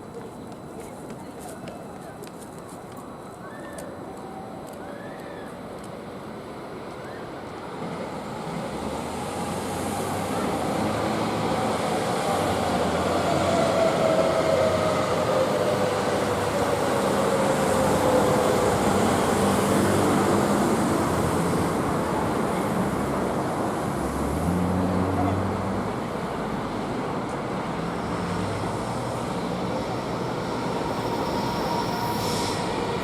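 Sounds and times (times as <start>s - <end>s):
electric freight train passing: 5.6s - 33.0s
whine sliding down in pitch: 30.4s - 33.0s.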